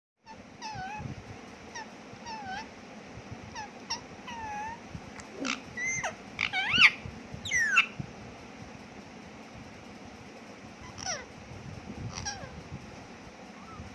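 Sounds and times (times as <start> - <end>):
parrot whistled calls: 5.4 - 8.0.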